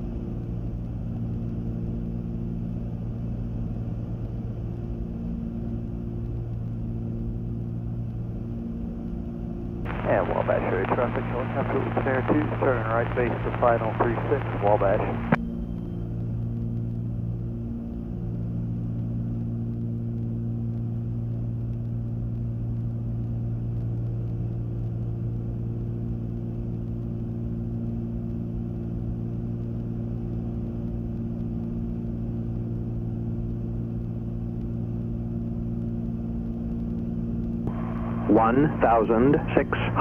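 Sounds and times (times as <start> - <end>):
aircraft engines droning: 0.0 - 40.0.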